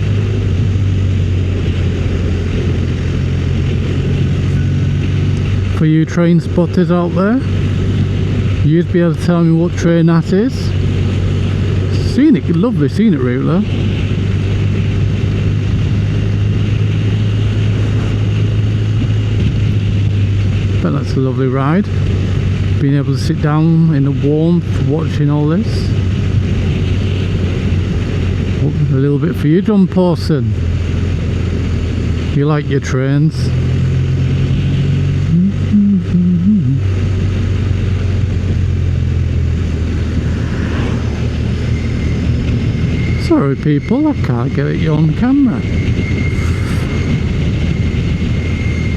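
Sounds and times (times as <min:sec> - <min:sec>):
motorcycle engine cruising: 0:00.0 - 0:48.9
wind and road noise: 0:00.0 - 0:48.9
wavering humming voice: 0:35.2 - 0:37.0, 0:45.6 - 0:47.9.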